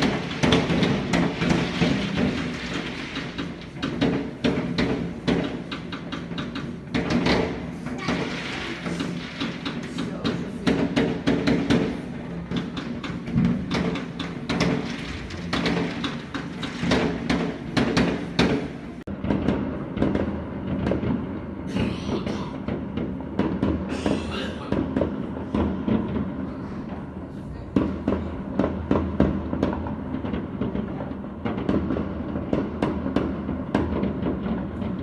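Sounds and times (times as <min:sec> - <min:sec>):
fireworks hissing bursts: 0:00.0 - 0:19.0
fireworks bangs and crackles: 0:00.0 - 0:35.0.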